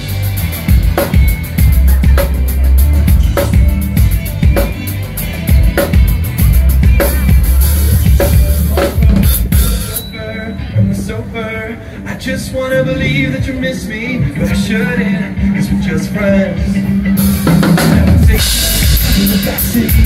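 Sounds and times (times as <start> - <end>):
drum kit beat: 0.0 - 10.1, 16.6 - 20.0
heavy bass: 0.0 - 20.0.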